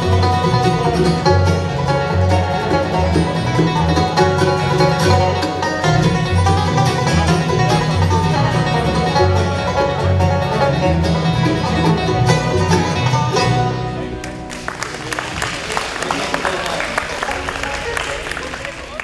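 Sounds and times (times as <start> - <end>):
walking bass line: 0.0 - 14.8
plucked banjo: 0.0 - 15.2
bluegrass music: 0.0 - 19.0
guitar: 0.0 - 19.0.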